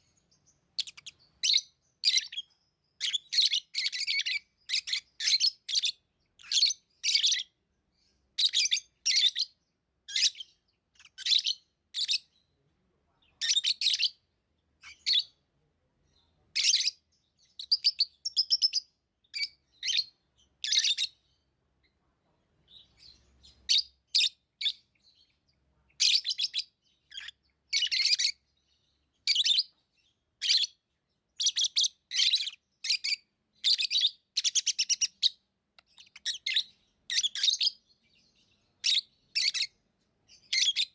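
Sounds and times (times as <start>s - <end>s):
lovebirds chirping: 0.0s - 40.9s.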